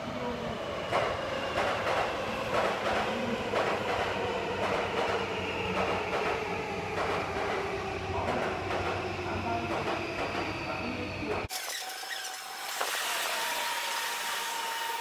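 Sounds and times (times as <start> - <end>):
train rumble: 0.8 - 11.5.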